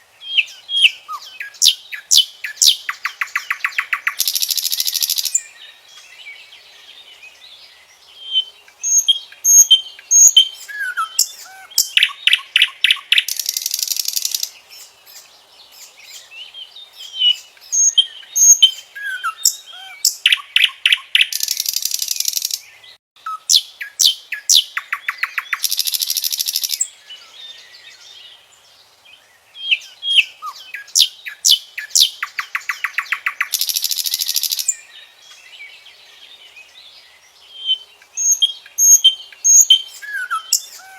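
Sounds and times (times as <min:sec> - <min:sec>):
nightingale singing: 0:00.0 - 0:40.9.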